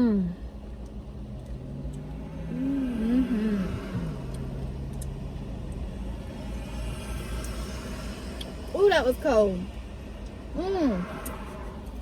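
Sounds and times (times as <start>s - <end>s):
car engine idling: 0.0s - 12.0s
person humming: 2.6s - 4.2s.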